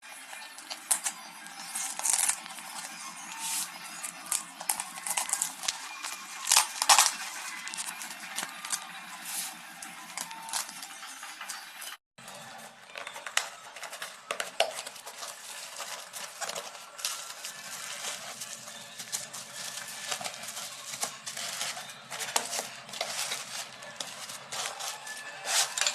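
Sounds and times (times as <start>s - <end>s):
packaging rustling: 0.3s - 10.8s, 12.8s - 25.9s.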